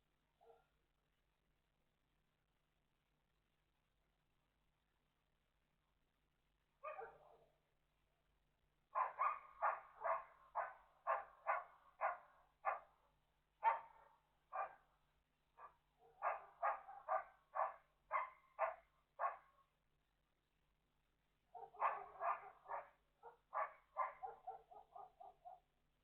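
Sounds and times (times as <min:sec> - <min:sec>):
dog barking: 0:00.4 - 0:00.7, 0:06.8 - 0:07.6, 0:08.9 - 0:12.9, 0:13.6 - 0:14.8, 0:15.6 - 0:19.6, 0:21.5 - 0:25.7.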